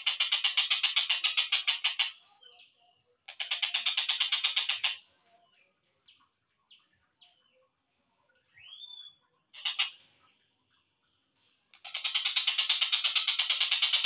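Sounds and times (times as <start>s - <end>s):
kingfisher rattling call: 0.0s - 2.2s, 3.3s - 5.0s, 9.6s - 10.0s, 11.8s - 14.0s.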